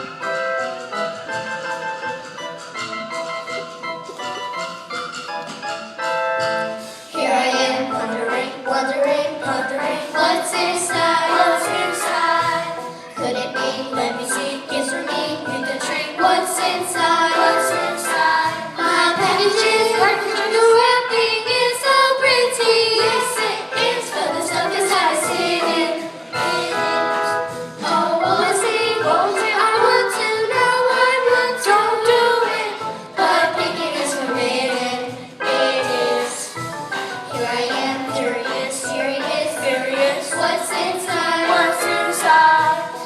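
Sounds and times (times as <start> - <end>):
instrumental accompaniment: 0.0 - 43.0
women singing: 7.2 - 26.8, 27.8 - 36.6, 37.3 - 43.0.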